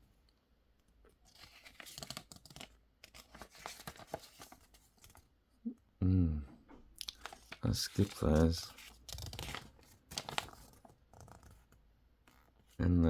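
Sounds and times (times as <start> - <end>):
paper pages rustling: 1.2 - 5.3, 7.1 - 12.4.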